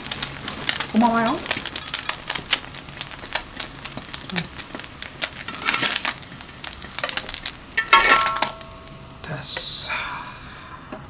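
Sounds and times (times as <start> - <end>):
toast sizzling in butter: 0.0 - 9.9
metal spatula scraping a pan: 5.5 - 6.0.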